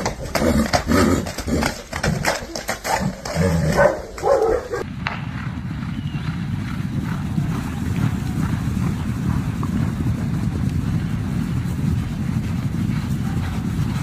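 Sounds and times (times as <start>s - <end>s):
steady low rumbling: 4.6s - 14.0s.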